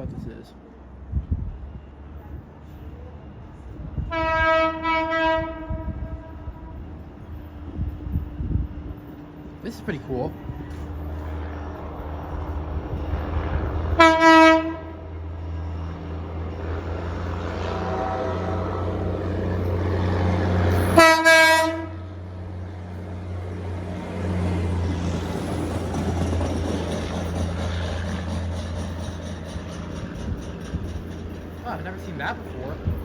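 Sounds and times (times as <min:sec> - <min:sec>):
rail vehicle engine running: 0:00.0 - 0:33.0
horn blasts: 0:04.1 - 0:06.9, 0:14.0 - 0:15.0, 0:17.6 - 0:19.0, 0:20.8 - 0:22.1.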